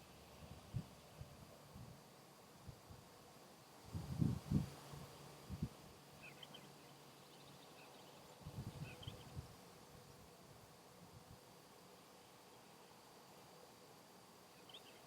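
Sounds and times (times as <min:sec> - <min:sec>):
faint bird chirps: 0:06.2 - 0:09.4, 0:14.5 - 0:15.0.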